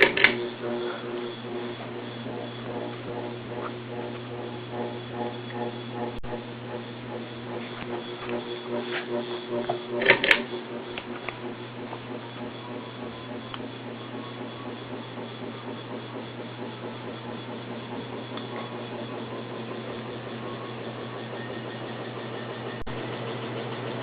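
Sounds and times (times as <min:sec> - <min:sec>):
sharp clicks: 0:00.0 - 0:00.4
ceiling fan humming: 0:00.0 - 0:24.0.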